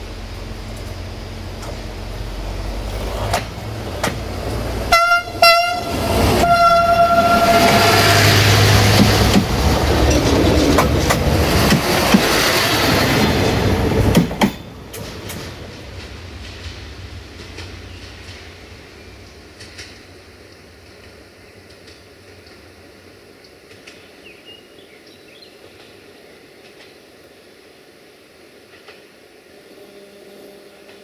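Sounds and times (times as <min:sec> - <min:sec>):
train wheels clicking over rail joints: 0:00.3 - 0:24.3
train horn blasts: 0:04.9 - 0:08.9, 0:29.6 - 0:31.0.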